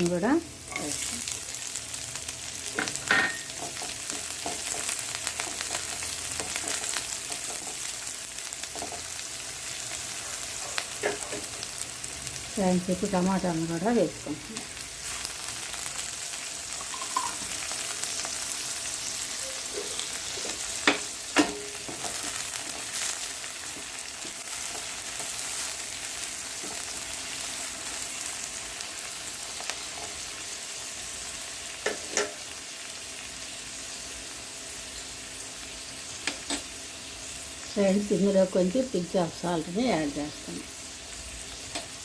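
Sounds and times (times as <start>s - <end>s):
vegetables sizzling in a pan: 0.0s - 42.0s.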